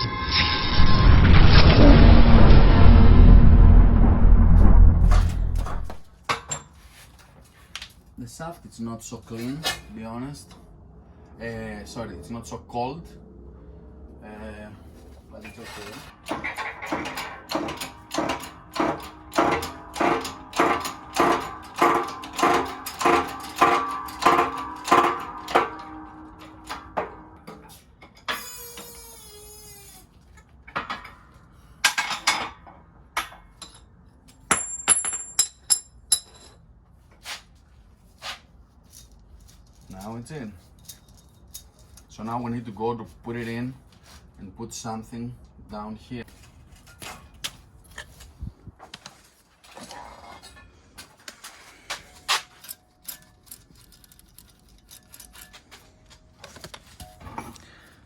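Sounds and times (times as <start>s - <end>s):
metal parts scraping: 15.3s - 27.3s, 52.0s - 58.0s
metal parts clicking and tapping: 16.2s - 28.4s, 52.0s - 57.6s.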